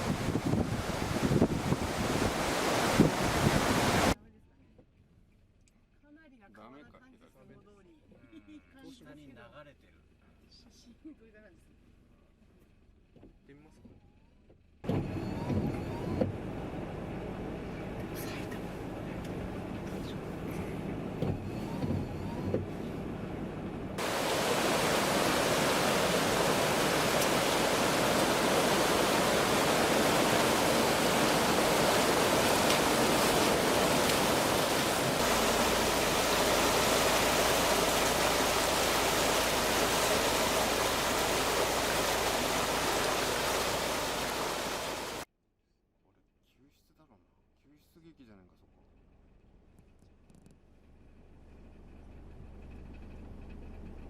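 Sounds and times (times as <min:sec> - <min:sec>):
storm wind rushing: 0:00.0 - 0:04.2, 0:24.0 - 0:45.2.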